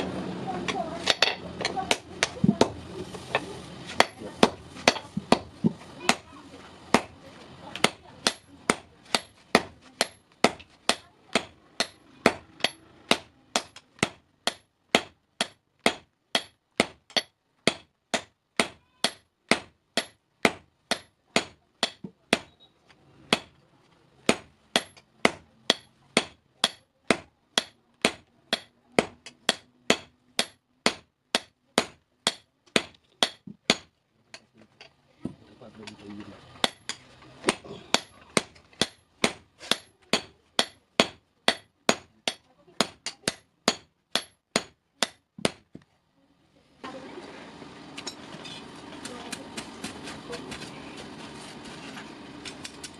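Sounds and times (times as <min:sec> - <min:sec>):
hammer striking steel on anvil: 0:01.0 - 0:02.7, 0:04.0 - 0:05.5, 0:07.8 - 0:22.6, 0:24.3 - 0:34.4, 0:36.6 - 0:45.6.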